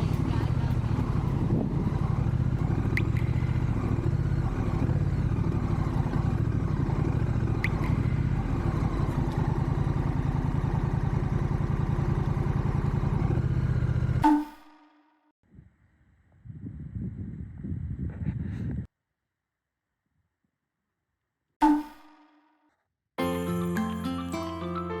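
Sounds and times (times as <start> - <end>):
motorcycle engine running: 0.0 - 14.3.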